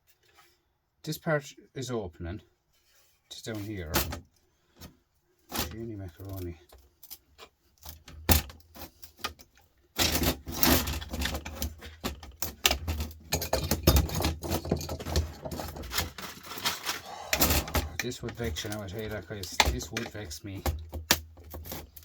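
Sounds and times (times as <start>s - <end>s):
metal case clicking and rattling: 7.8s - 22.0s.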